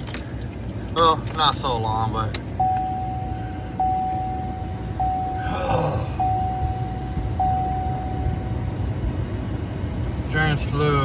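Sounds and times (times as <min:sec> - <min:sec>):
low rumble in cab: 0:00.0 - 0:11.0
dashboard warning chime: 0:02.5 - 0:09.5.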